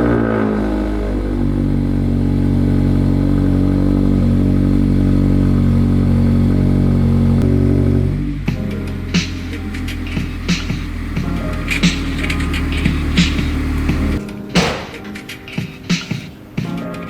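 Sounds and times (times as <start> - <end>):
car engine starting and idling: 0.0 - 14.2.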